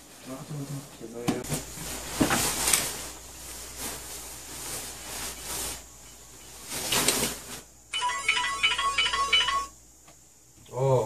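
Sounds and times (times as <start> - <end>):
soft hissing rustling noise: 0.0 - 8.0
mobile phone ringtone melody: 7.9 - 9.8.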